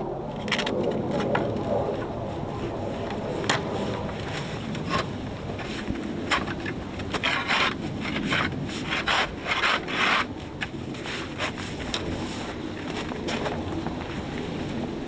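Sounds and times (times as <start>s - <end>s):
blade rasping on wood: 5.8s - 10.4s.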